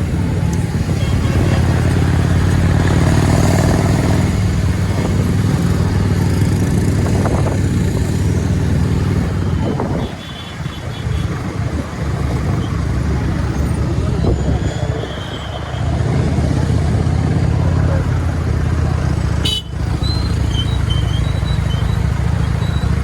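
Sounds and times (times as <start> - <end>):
motorcycle engine running: 0.0 - 14.2, 16.0 - 23.0
road noise: 0.0 - 23.0.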